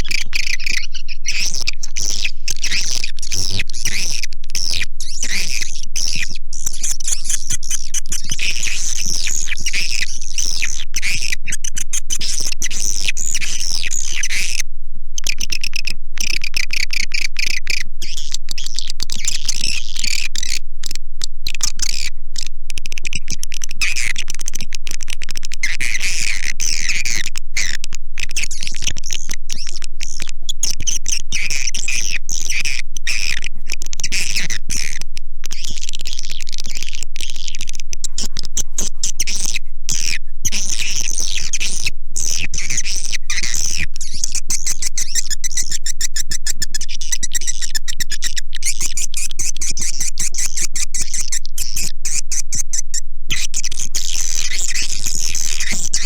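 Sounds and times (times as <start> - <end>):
swiftlet twittering chirps: 0.0 - 14.6, 34.1 - 56.0.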